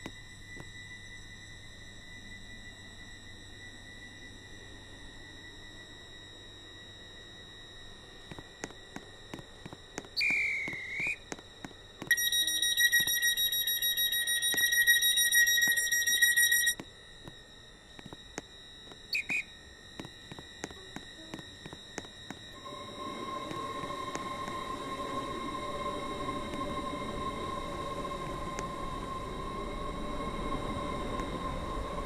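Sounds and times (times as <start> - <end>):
steady high whine: 0.0 - 32.0
pulsing warning buzzer: 6.2 - 28.9
clicks: 8.3 - 16.9
short beeps: 10.1 - 11.2, 12.0 - 16.8, 19.0 - 19.6.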